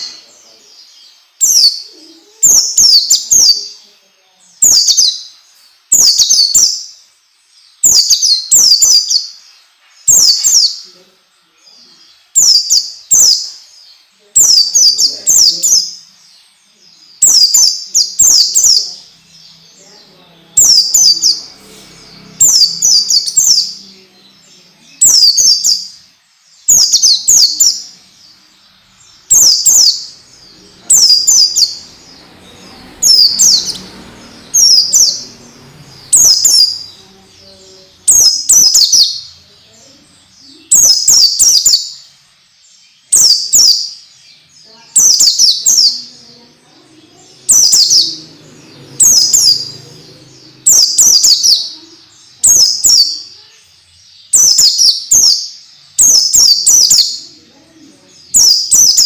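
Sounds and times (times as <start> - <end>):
bird twittering song: 0.0 - 59.0.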